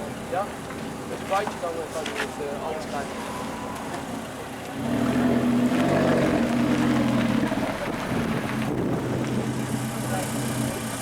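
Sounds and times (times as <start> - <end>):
car engine running: 4.0 - 11.0.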